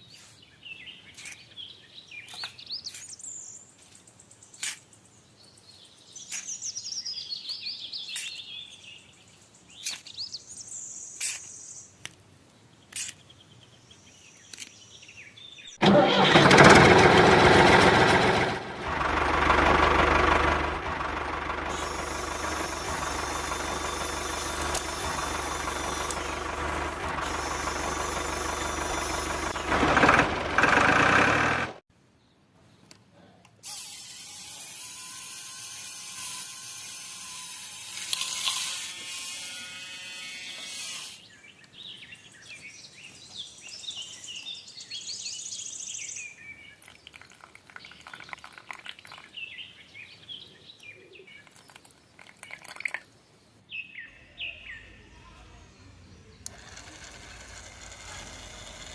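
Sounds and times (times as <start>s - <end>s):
steady whirring: 15.8s - 31.8s, 55.8s - 58.9s
small motor running: 16.4s - 31.8s, 56.4s - 58.9s.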